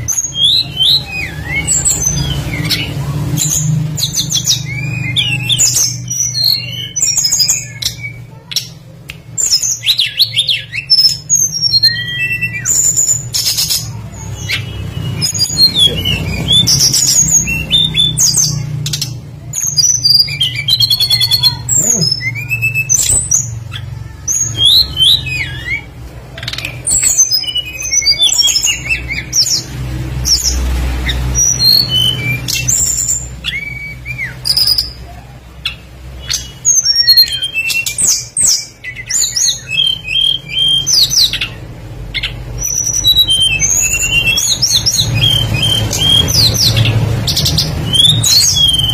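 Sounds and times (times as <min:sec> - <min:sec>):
songbird chirps and trills: 0:00.0 - 0:48.9.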